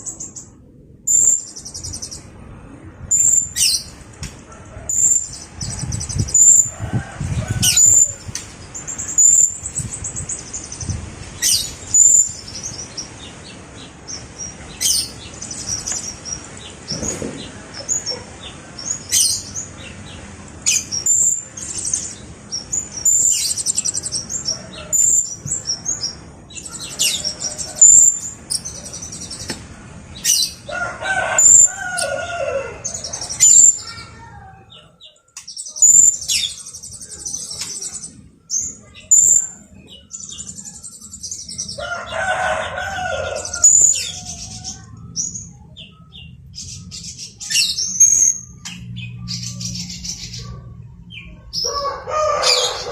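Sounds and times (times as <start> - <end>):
parrot chirps and trills: 7.5 - 10.8, 31.3 - 52.9
harsh parrot call: 51.5 - 52.9.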